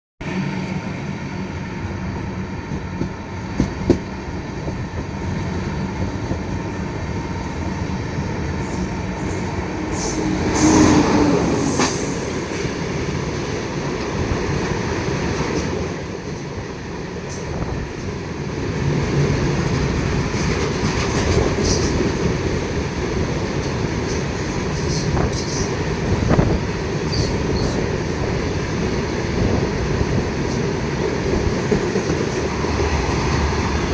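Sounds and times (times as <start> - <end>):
train wheels rumbling on rails: 0.2 - 33.9
train wheels clacking: 2.7 - 6.7, 19.2 - 22.3.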